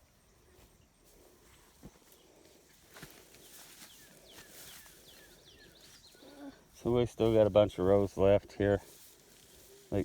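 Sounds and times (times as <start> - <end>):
faint bird chirping: 0.0 - 7.0.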